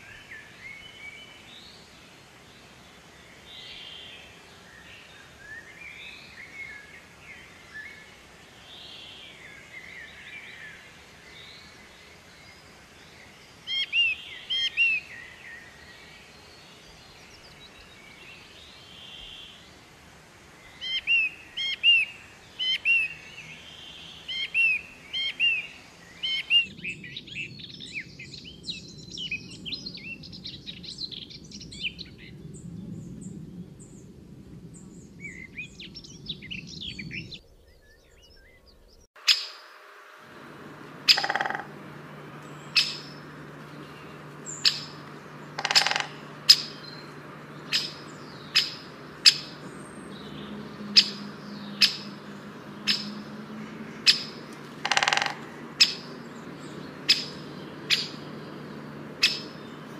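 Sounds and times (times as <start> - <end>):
birds chirping and twittering: 0.0 - 59.9
low background rumble: 40.0 - 59.9.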